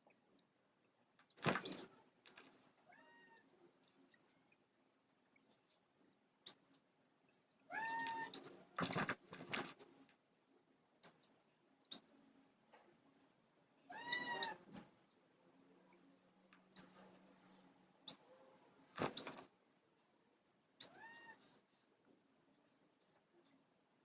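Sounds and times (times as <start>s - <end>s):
faint chirps and clicks: 0.0s - 23.7s
meow-like animal calls: 2.9s - 3.5s, 7.7s - 8.4s, 13.9s - 14.6s, 20.8s - 21.5s.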